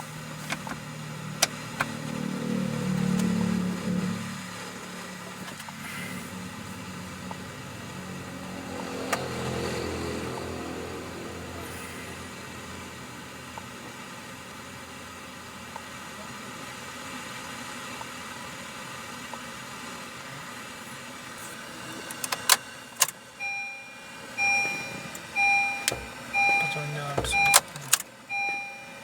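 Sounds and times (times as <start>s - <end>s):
faint car hum: 0.0s - 29.0s
pulsing electronic beep: 23.4s - 27.6s, 28.3s - 29.0s.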